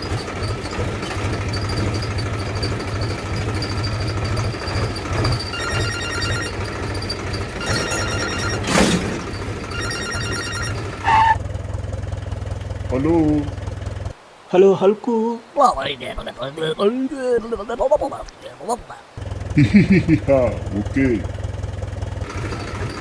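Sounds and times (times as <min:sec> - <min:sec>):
small engine pulsing: 0:00.0 - 0:14.2, 0:19.2 - 0:23.0
mobile phone ringtone: 0:05.4 - 0:11.4.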